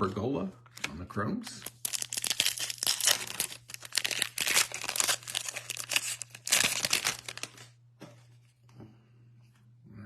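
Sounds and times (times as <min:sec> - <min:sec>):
foil wrapper crinkling and tearing: 0:01.5 - 0:07.8.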